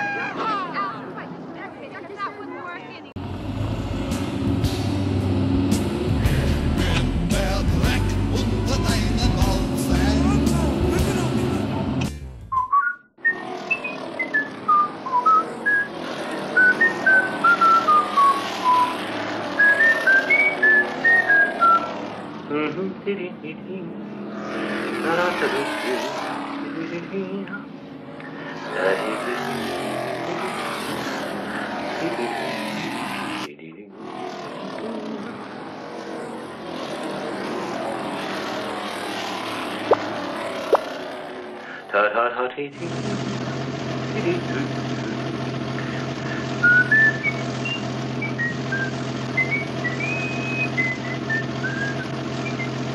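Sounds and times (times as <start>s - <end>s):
person whistling a tune: 12.5s - 15.9s, 46.6s - 52.8s.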